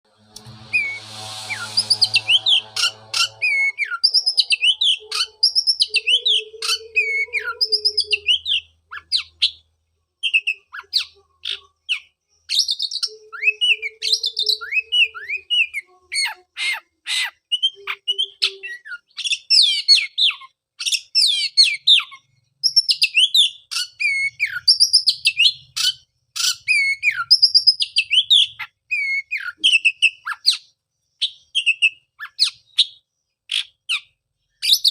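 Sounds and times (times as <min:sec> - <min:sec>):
low hum: 0:00.0 - 0:06.1
bird singing whistled phrases: 0:00.7 - 0:09.3.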